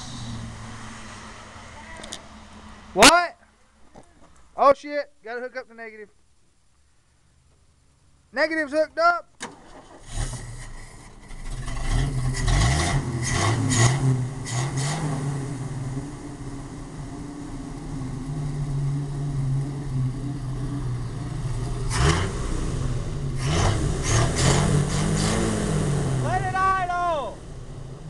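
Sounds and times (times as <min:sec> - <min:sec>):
engine revving and idling: 0:00.0 - 0:03.0, 0:09.8 - 0:28.0.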